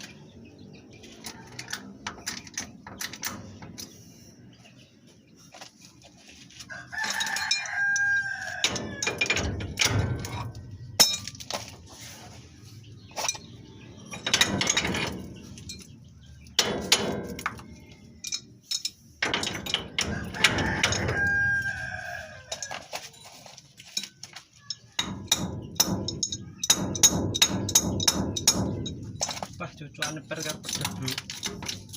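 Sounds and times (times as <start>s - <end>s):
sharp clicks and knocks: 1.2s - 4.0s, 7.0s - 11.9s, 13.2s - 21.8s, 23.8s - 31.9s
rooster crowing: 6.7s - 9.1s, 20.1s - 22.9s.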